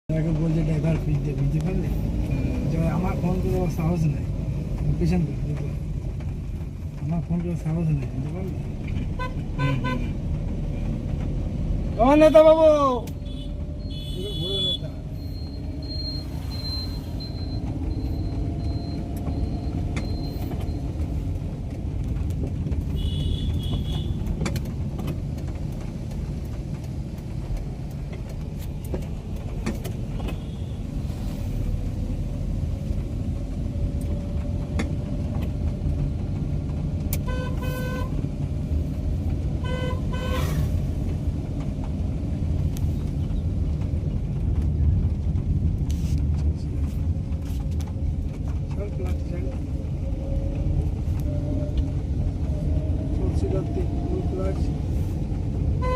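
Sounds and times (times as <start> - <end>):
car engine and tyres rumbling: 0.1 - 55.9
car horns honking: 9.2 - 10.1, 13.2 - 15.0, 23.0 - 24.3, 37.2 - 38.2, 39.6 - 40.7.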